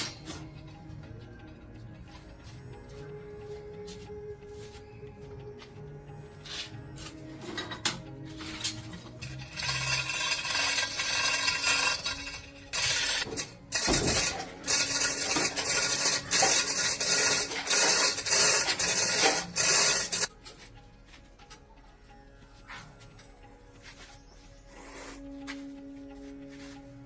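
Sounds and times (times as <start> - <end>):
filing metal: 8.4 - 20.3.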